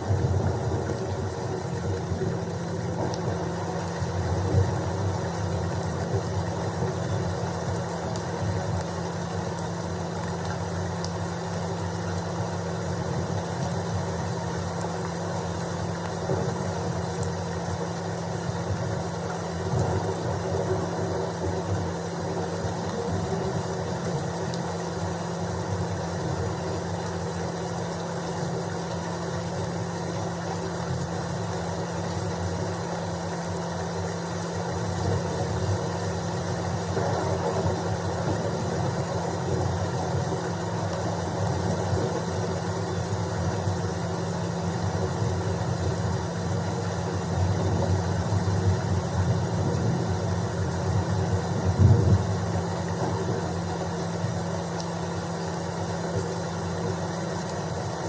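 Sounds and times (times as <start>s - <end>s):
constant low rumble: 0.0s - 58.0s
faint steady hum: 0.0s - 58.0s
steady rain: 0.0s - 58.0s.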